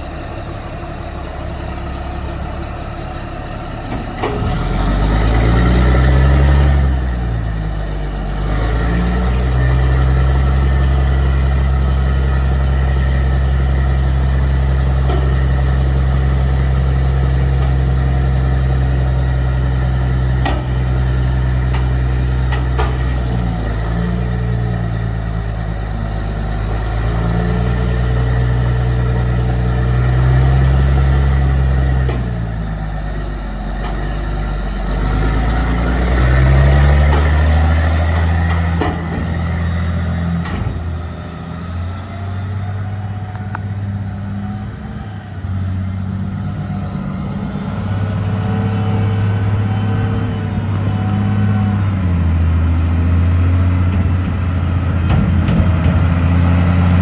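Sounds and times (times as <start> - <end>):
diesel engine idling and revving: 0.0 - 57.0.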